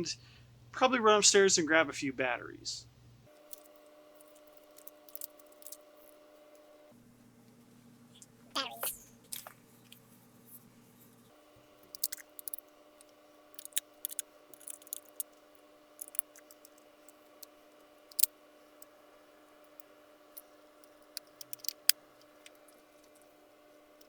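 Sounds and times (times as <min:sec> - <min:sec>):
faint hum: 0:00.0 - 0:24.0
objects clicking and tapping: 0:03.4 - 0:06.2, 0:11.8 - 0:15.4, 0:16.0 - 0:18.3, 0:20.4 - 0:23.2.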